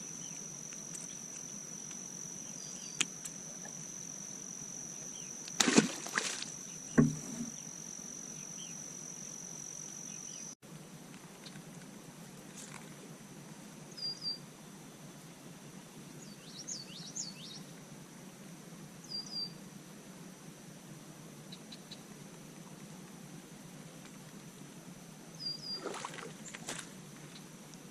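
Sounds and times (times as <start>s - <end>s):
high-pitched whine: 0.0s - 10.6s
low thump: 6.9s - 7.6s.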